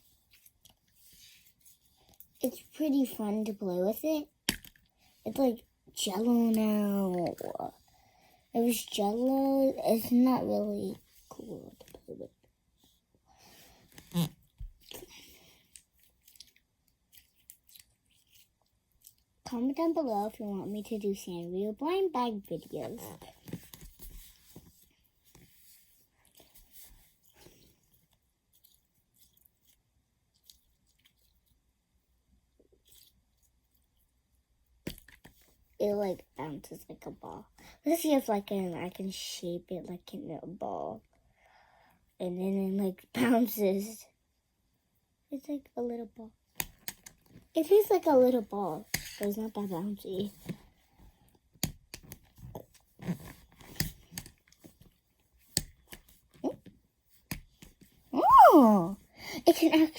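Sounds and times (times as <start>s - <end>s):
slime squelching in hands: 14.0s - 19.4s.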